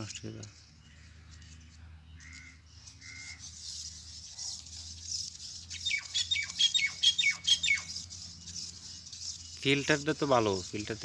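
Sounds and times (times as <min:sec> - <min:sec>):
bird squawking: 0:02.2 - 0:04.5, 0:05.7 - 0:08.8.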